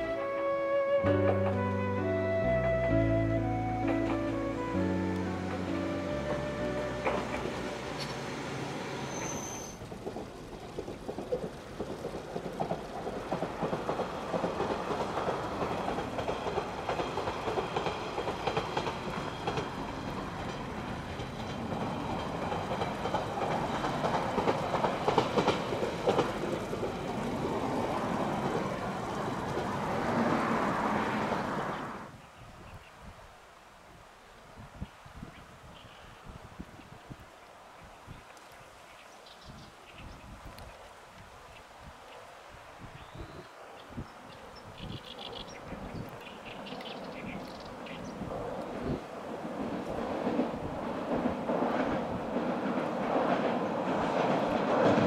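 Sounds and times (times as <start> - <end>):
railcar rumble: 0.0 - 32.3, 43.0 - 55.0
wheels clattering over track: 6.2 - 32.0.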